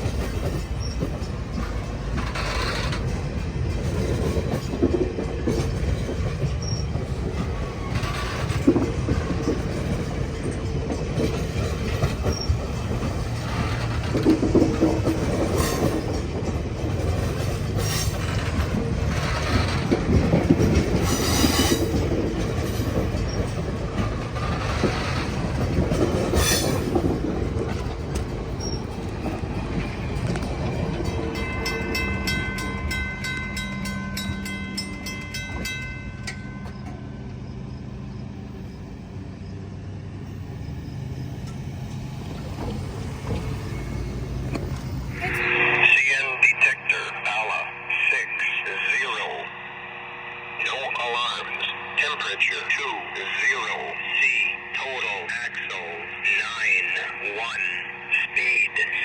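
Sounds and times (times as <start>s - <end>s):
train wheels rumbling: 0.0s - 46.3s
train cars clanking and squealing: 0.0s - 59.0s
crossing bell ringing: 29.7s - 38.2s, 43.2s - 46.4s.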